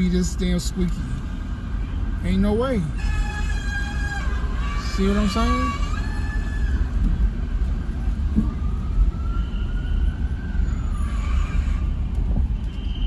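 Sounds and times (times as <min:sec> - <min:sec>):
vehicle brakes squealing: 0:10.7 - 0:12.0.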